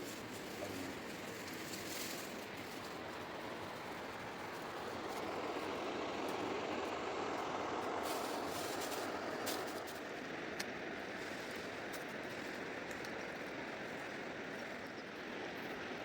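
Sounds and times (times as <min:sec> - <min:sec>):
faint clicks: 0:12.8 - 0:13.4.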